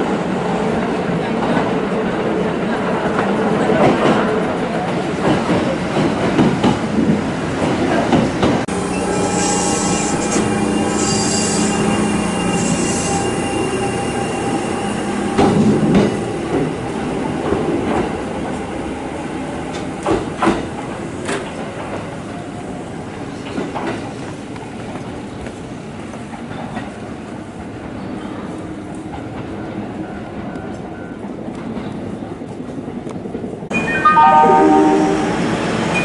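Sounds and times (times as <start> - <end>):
train rumbling: 0.0 - 36.0
train wheels squealing: 8.8 - 16.0.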